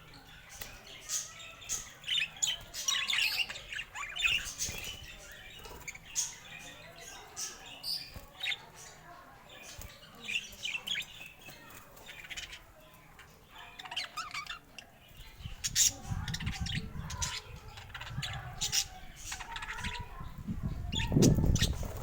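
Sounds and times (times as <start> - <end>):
parakeets chirping and squawking: 0.0 - 22.0.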